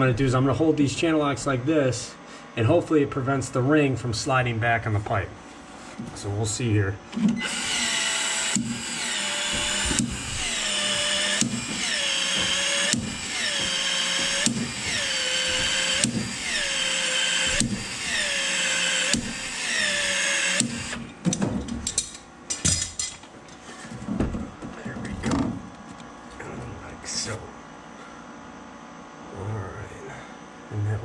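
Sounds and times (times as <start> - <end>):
pipe expansion tool motor whining: 7.1 - 22.2.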